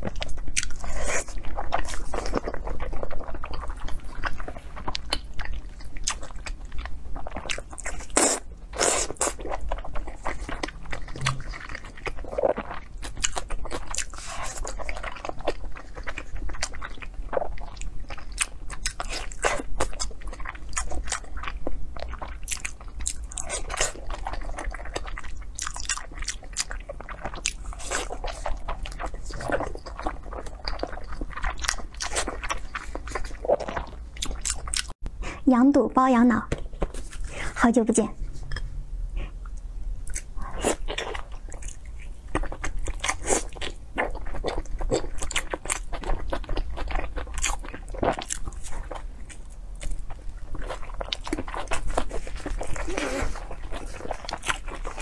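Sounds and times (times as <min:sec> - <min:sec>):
chewing and biting: 0:00.0 - 0:35.4, 0:38.4 - 0:55.0
mouth clicks and smacks: 0:11.1 - 0:11.6.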